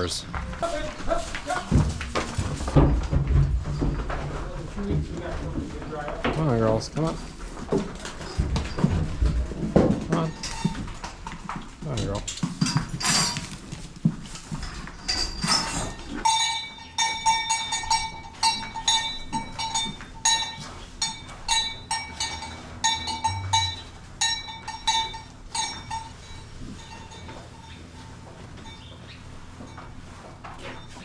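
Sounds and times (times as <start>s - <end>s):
ringing metal clanks: 10.1s - 11.0s, 14.6s - 31.0s.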